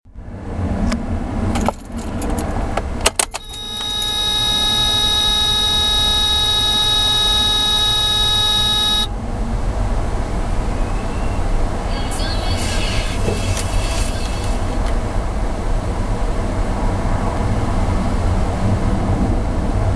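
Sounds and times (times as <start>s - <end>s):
car warning buzzer: 3.3s - 9.1s.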